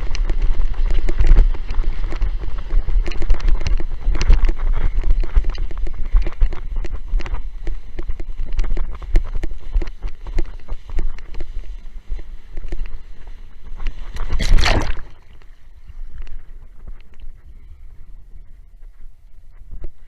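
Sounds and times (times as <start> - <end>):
board hull slapping water: 0.0 - 17.4
wind rumble on microphone: 0.0 - 20.0
loud splash: 14.2 - 15.2.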